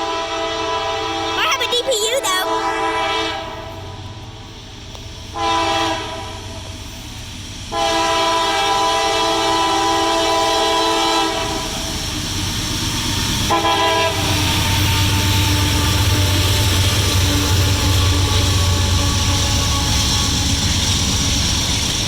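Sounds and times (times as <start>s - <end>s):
locomotive air horn blasts: 2.5s - 3.8s, 5.4s - 6.4s, 7.7s - 11.4s, 13.5s - 14.4s
train rumbling: 2.5s - 22.0s.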